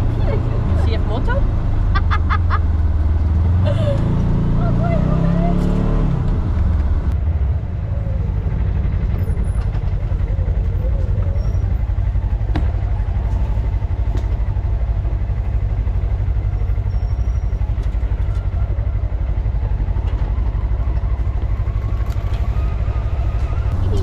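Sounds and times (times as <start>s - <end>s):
vehicle engine droning: 0.0s - 24.0s.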